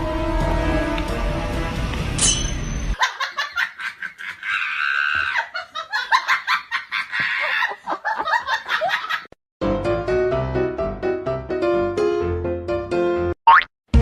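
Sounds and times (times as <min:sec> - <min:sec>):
music: 0:00.0 - 0:03.0, 0:09.6 - 0:14.0
rapid high-pitched laughing: 0:03.0 - 0:09.2.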